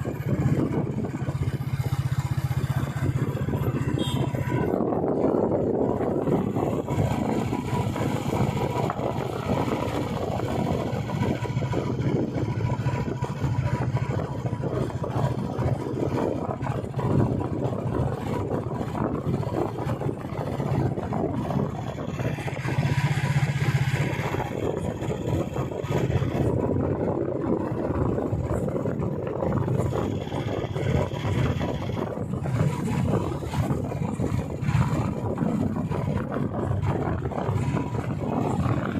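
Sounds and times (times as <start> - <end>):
motorcycle engine running: 0.0 - 38.9
road and wind noise: 0.0 - 38.9.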